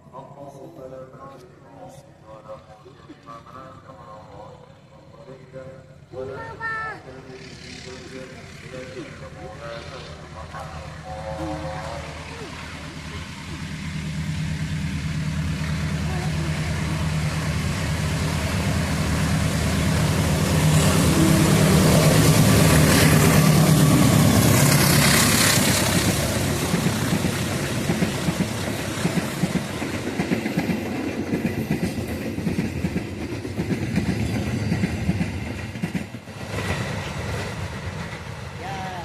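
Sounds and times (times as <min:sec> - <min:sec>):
locomotive engine hum: 0:00.0 - 0:39.0
train wheels clattering on rails: 0:13.7 - 0:38.6.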